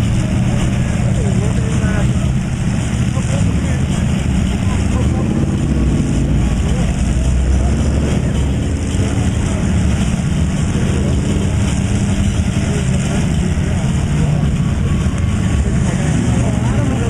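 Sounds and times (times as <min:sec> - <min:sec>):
background voices: 0:00.0 - 0:17.0
truck engines running: 0:00.0 - 0:17.0.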